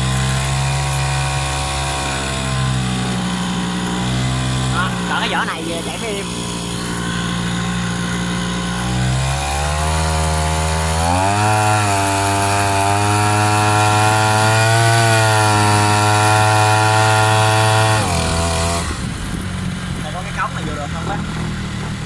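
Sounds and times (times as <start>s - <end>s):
two-stroke boat engine revving: 0.0s - 22.0s.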